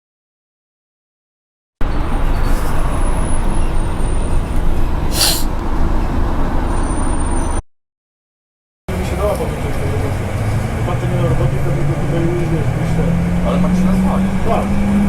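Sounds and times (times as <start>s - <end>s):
road traffic rumble: 1.8s - 7.6s, 8.9s - 15.0s
air brake hiss: 5.1s - 5.5s.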